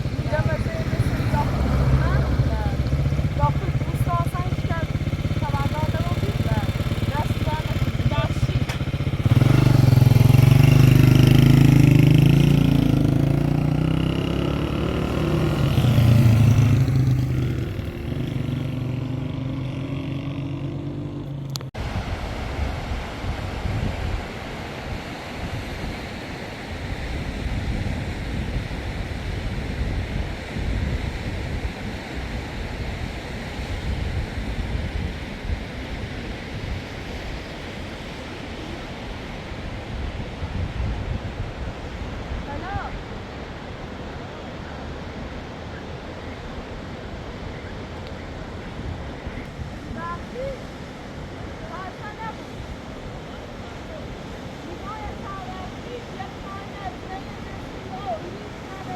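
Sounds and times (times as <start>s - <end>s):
vehicle engine running loudly: 0.0s - 21.7s
flooded river water rushing: 0.0s - 58.9s
wind on microphone: 0.0s - 58.9s.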